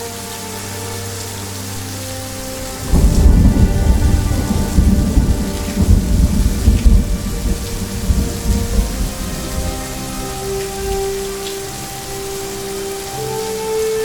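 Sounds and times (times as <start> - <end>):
steady rain: 0.0 - 14.0
thunder rumbling: 2.4 - 12.1.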